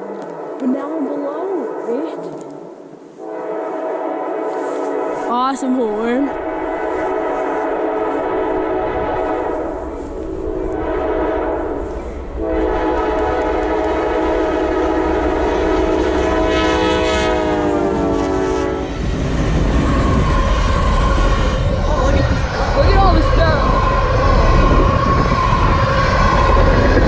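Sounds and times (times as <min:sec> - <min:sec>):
locomotive air horn blowing: 0:00.0 - 0:05.5, 0:06.4 - 0:21.8
low rumble of passing train: 0:00.0 - 0:27.0.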